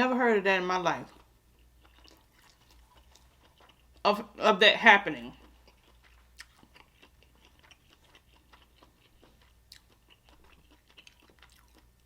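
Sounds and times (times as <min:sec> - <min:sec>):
chewing mouth clicks and smacks: 0:01.2 - 0:04.0, 0:05.4 - 0:12.0.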